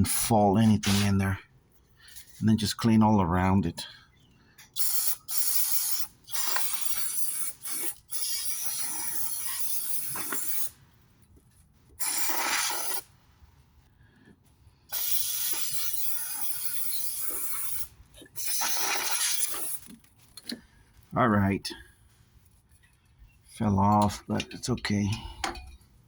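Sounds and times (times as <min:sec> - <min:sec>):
aerosol can spraying: 0:04.8 - 0:10.7, 0:12.0 - 0:13.1, 0:14.9 - 0:19.9.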